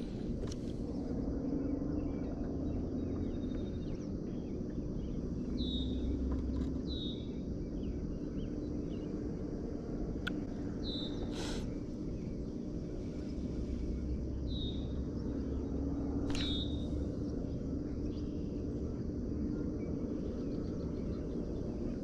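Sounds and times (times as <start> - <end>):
low steady hum: 0.0 - 22.0
bird whistles: 16.3 - 16.8.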